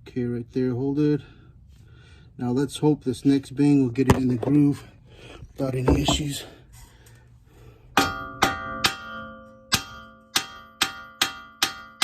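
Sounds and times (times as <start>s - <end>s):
hammer striking metal: 7.9s - 12.0s.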